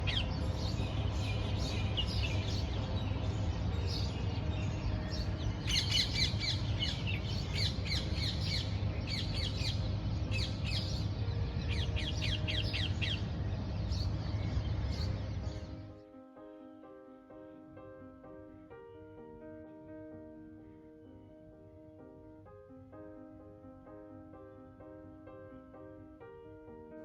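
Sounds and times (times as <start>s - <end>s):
steady low rumble: 0.0s - 15.8s
birds chirping: 0.0s - 16.0s.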